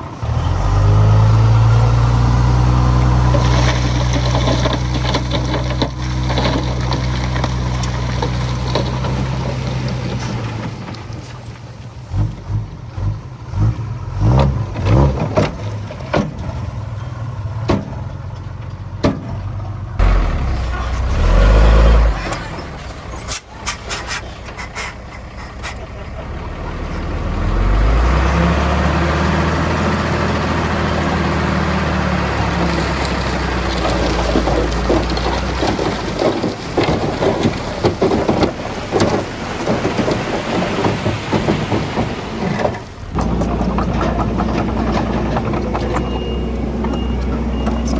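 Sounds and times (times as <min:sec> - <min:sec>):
heavy diesel engine running: 0:19.7 - 0:47.9
clattering knocks: 0:32.5 - 0:47.9.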